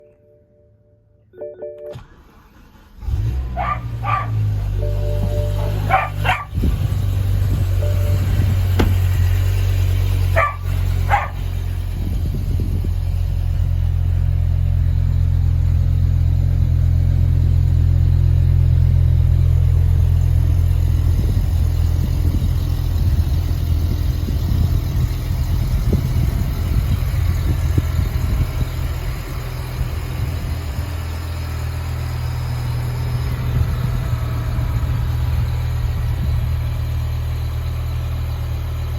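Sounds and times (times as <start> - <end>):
car engine idling: 2.0 - 38.9
dog barking: 3.5 - 4.6, 5.5 - 6.6, 10.3 - 11.5.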